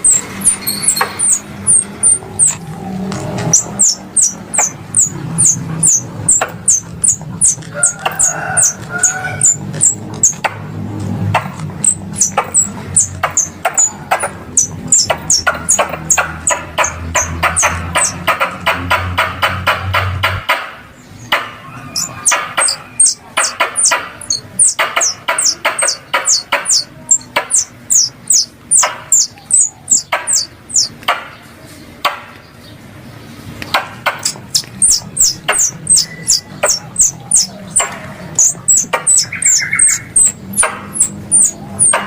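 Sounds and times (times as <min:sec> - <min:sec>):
squirrel lure call chirps: 0:00.0 - 0:02.6, 0:03.4 - 0:10.4, 0:11.4 - 0:18.2, 0:21.8 - 0:31.0, 0:34.1 - 0:42.0.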